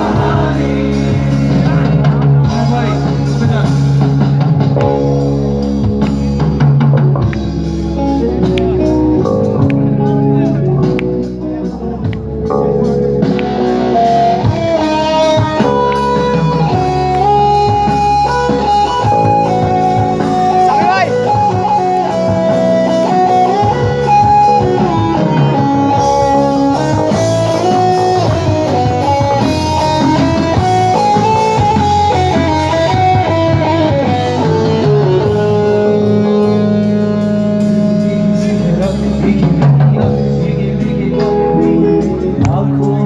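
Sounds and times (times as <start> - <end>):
bass: 0.0 - 43.0
drum kit: 0.0 - 43.0
guitar chords: 0.0 - 43.0
lead melody line: 0.0 - 43.0.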